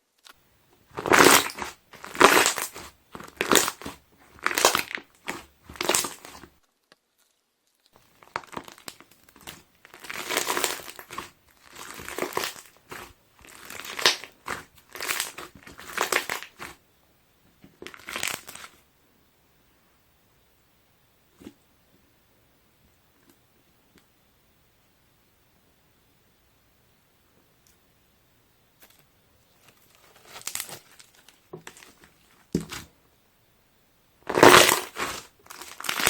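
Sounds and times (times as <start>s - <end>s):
slime squeezing and popping: 1.0s - 16.8s, 34.3s - 36.0s.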